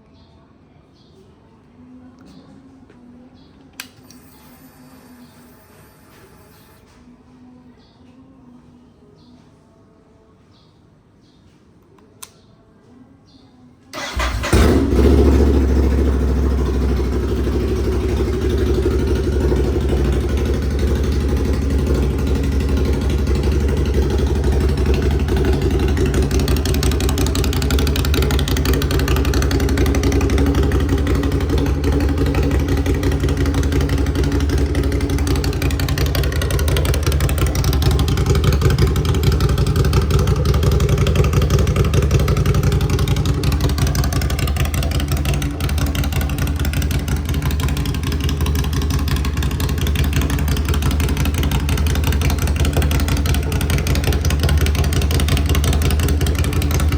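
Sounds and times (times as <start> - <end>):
click: 3.6 - 4.3, 11.8 - 12.5
motorcycle engine starting and idling: 13.9 - 56.9.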